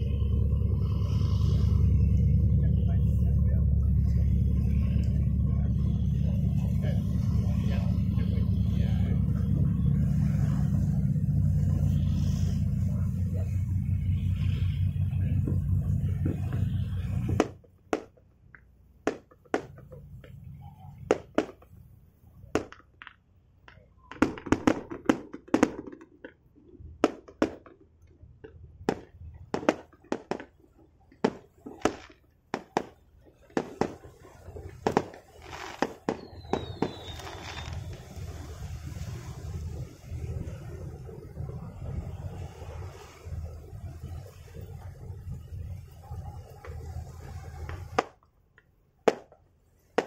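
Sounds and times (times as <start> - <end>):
engine rumble: 0.0 - 50.0
firecrackers popping: 2.9 - 28.0, 28.8 - 39.6, 46.0 - 48.3, 49.1 - 50.0.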